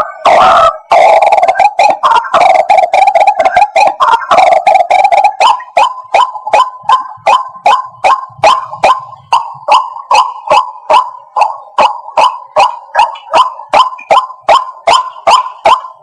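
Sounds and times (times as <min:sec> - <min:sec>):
bird sharp repeated calls: 0:00.0 - 0:16.0.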